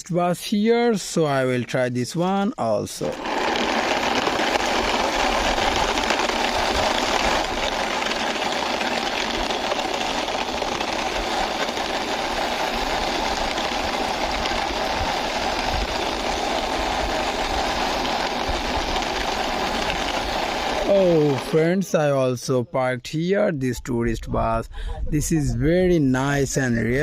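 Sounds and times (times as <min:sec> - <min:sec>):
toy wheels rolling: 0:02.7 - 0:21.6.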